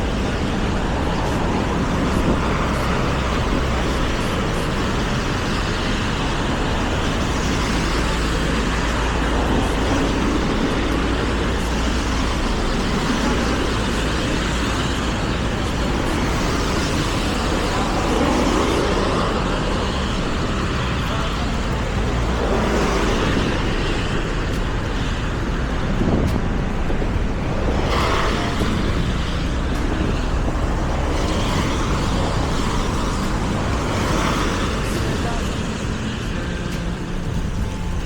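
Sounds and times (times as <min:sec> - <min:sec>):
bike tyre noise: 0:00.0 - 0:38.0
road traffic: 0:00.0 - 0:38.0
wind rumbling on microphone: 0:00.0 - 0:38.0.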